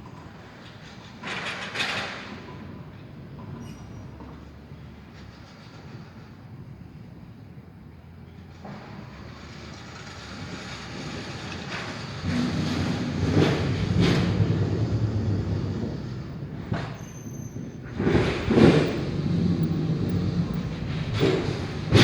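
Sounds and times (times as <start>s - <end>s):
thunder rumbling and cracking: 12.2s - 22.0s.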